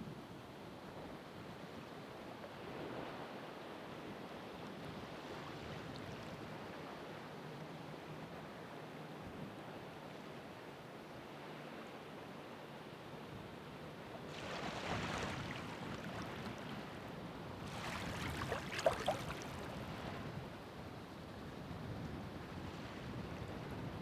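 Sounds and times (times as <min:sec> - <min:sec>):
water splashing: 0:14.3 - 0:16.6, 0:17.7 - 0:19.8
ocean waves breaking: 0:14.3 - 0:20.3.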